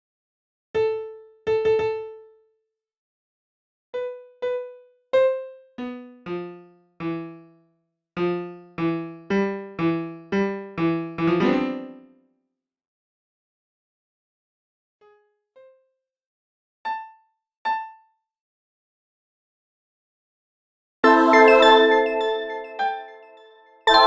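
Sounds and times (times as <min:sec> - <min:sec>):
piano notes: 0:21.0 - 0:24.0.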